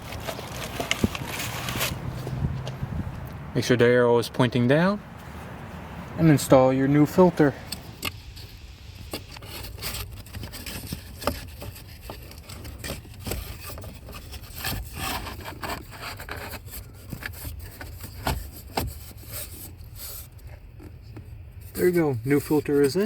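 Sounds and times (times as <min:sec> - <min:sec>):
filter scraping against housing: 0:07.0 - 0:23.0.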